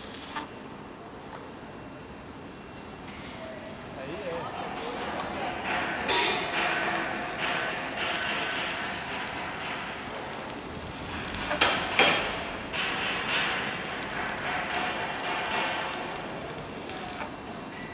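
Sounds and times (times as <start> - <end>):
welding arc crackling: 0.0 - 0.5, 3.8 - 17.9
sharp knocks: 4.7 - 17.3.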